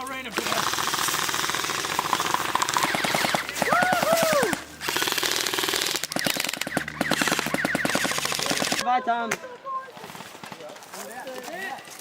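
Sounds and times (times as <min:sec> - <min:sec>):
airsoft guns firing: 0:00.4 - 0:08.8
person shouting: 0:03.7 - 0:04.6.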